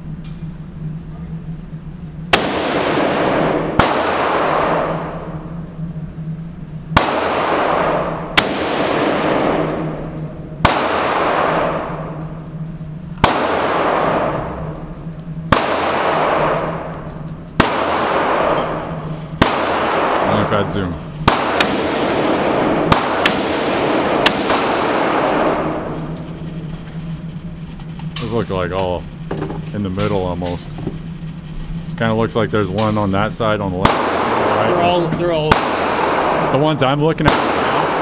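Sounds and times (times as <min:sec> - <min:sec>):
handgun shots echoing: 0:02.3 - 0:05.4, 0:07.0 - 0:12.5, 0:13.2 - 0:26.4, 0:33.8 - 0:38.0.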